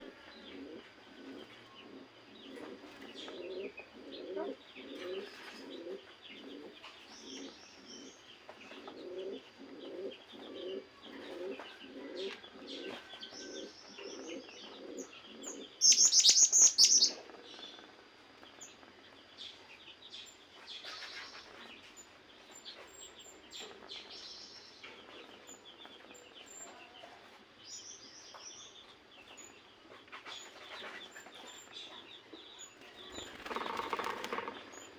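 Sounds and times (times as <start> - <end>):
dove cooing: 0.0 - 17.9, 33.0 - 34.9
small birds chirping: 0.0 - 34.9.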